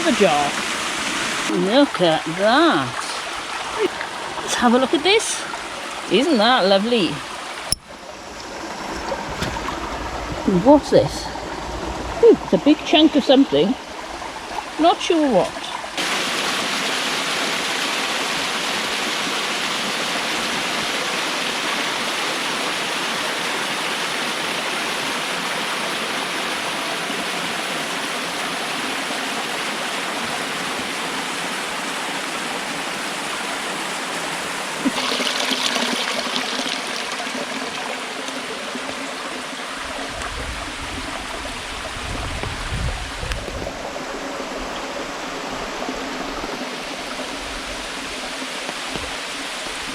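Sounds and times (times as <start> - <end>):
water splash: 0.0 - 18.5, 34.7 - 38.5
stream rushing over rocks: 0.0 - 49.9
low rumble: 8.2 - 14.8.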